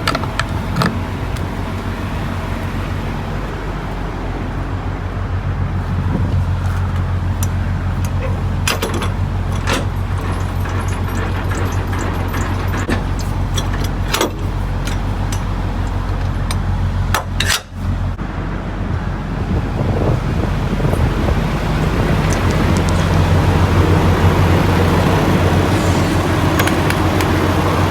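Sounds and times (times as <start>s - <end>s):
diesel truck engine humming: 0.0s - 27.9s
sharp clicks and knocks: 7.0s - 17.8s, 26.2s - 27.4s.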